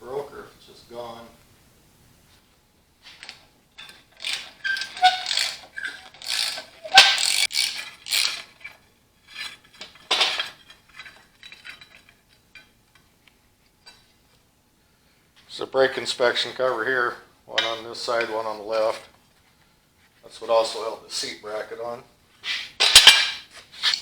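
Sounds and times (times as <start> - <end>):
ratchet wrench clicking: 3.2 - 8.6.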